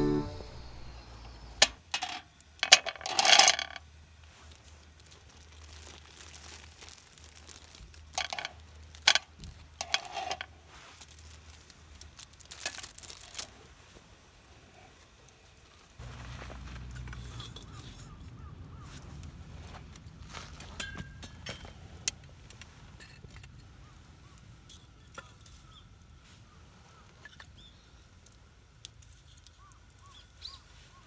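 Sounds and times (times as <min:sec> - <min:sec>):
small objects being handled: 0:04.6 - 0:13.7.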